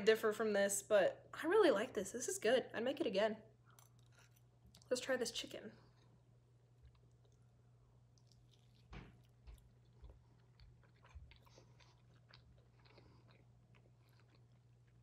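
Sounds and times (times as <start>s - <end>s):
person biting and chewing crispy food: 3.7s - 4.9s, 8.1s - 15.0s.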